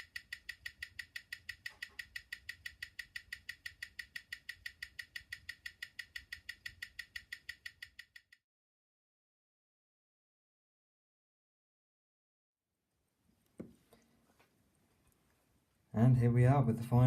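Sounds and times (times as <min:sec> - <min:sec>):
watch movement ticking: 0:00.0 - 0:08.4.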